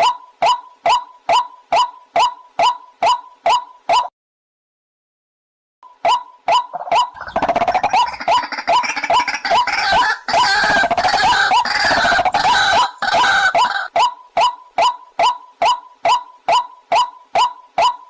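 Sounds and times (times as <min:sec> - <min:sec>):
waterhen calling: 0:06.1 - 0:18.0.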